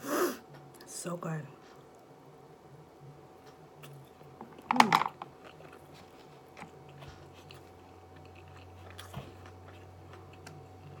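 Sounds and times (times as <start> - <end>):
faint steady hum: 0.0 - 11.0
soft chewing: 3.4 - 11.0.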